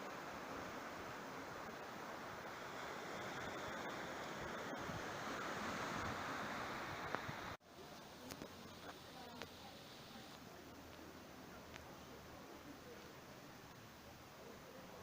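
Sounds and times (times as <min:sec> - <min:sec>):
sea surf washing on beach: 0:00.0 - 0:07.6
quiet hiss: 0:00.0 - 0:15.0.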